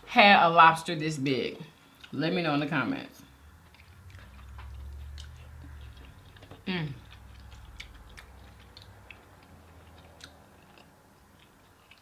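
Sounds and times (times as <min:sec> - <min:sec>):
faint chewing with wet clicks: 0:01.8 - 0:02.2, 0:03.2 - 0:12.0.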